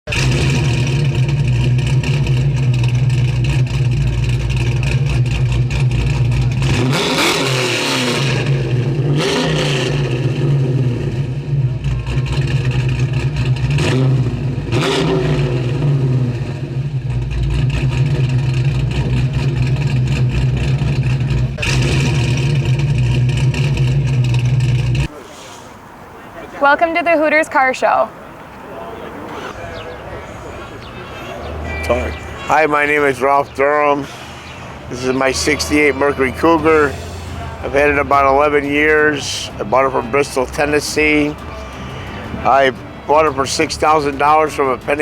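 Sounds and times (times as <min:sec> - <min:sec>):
car engine idling and revving: 0:00.1 - 0:25.2, 0:27.8 - 0:45.0.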